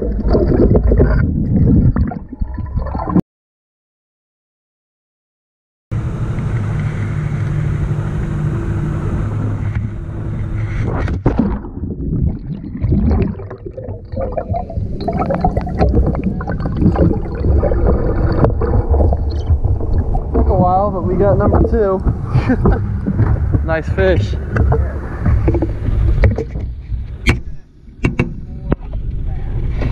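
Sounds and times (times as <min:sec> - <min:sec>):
underwater rushing and gurgling: 0:00.0 - 0:03.2, 0:06.0 - 0:29.9
fish thrashing and splashing: 0:11.3 - 0:20.5.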